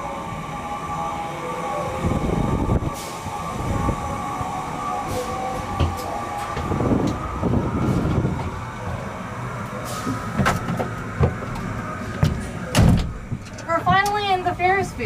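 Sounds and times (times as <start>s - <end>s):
machinery whining hum: 0.0s - 15.0s
wind buffeting the microphone: 1.8s - 11.6s.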